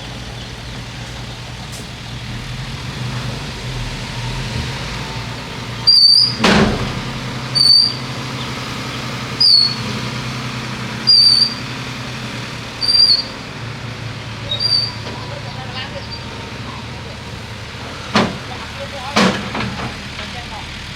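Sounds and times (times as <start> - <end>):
bulldozer engine running: 0.0 - 20.9
short high squeak: 5.9 - 6.4, 7.6 - 8.1, 9.4 - 9.8, 11.1 - 11.6, 12.8 - 13.3, 14.5 - 15.0.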